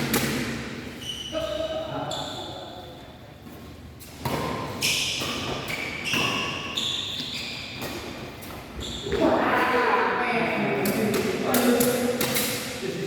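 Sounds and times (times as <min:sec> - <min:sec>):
sneakers squeaking on court floor: 0:00.2 - 0:09.5.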